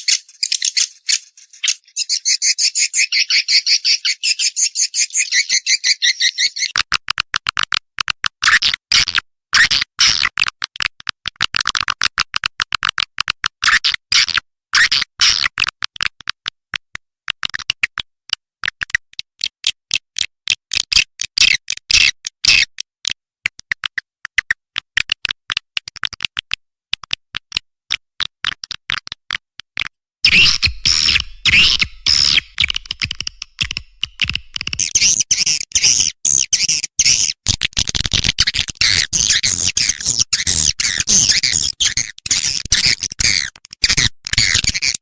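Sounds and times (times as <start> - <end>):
swiftlet clicks and chirps: 30.2 - 37.4.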